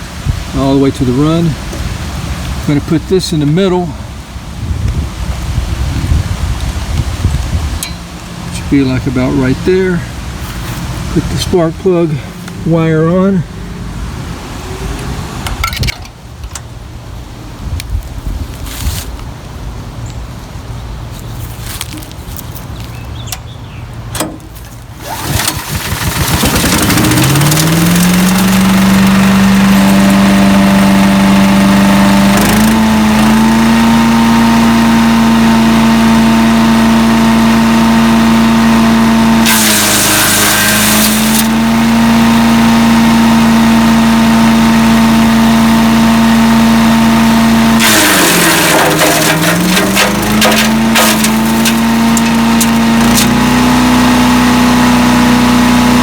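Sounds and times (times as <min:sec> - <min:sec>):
gasoline engine running: 0:05.5 - 0:16.8, 0:24.0 - 0:56.0
wood chipper shredding: 0:24.2 - 0:56.0.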